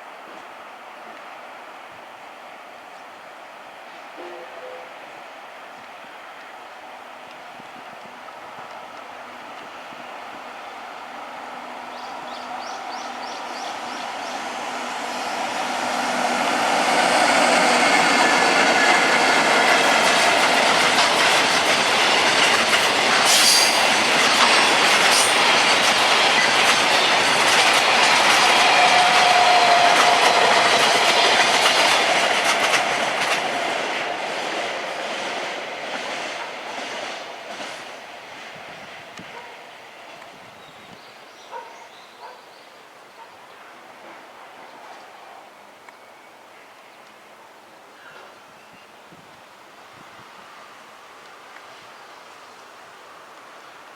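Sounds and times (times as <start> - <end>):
train wheels clattering: 16.0 - 38.0
train wheel squeal: 23.2 - 24.0, 28.3 - 32.0.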